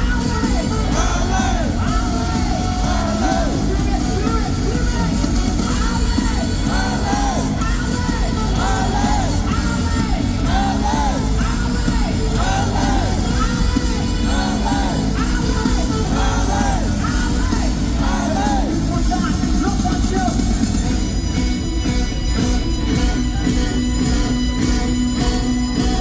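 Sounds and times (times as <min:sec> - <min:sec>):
person yelling and singing: 0:00.0 - 0:20.7
funk band playing: 0:00.0 - 0:26.0.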